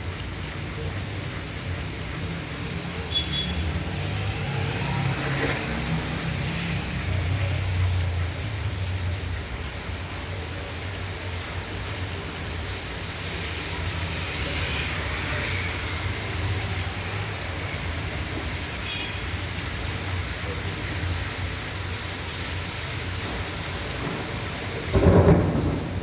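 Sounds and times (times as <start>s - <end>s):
heavy rain hissing: 0.0s - 26.0s.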